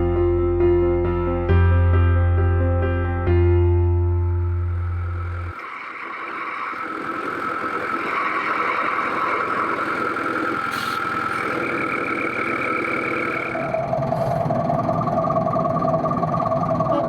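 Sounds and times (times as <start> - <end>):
locomotive running: 4.3 - 17.0.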